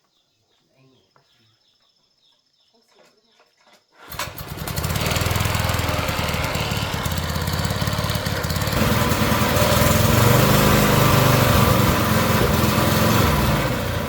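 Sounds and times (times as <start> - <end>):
small petrol engine running: 4.0 - 14.0.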